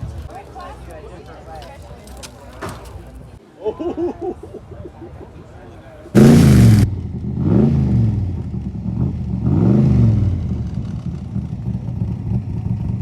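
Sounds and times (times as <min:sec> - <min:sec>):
car engine revving and idling: 0:06.2 - 0:13.0.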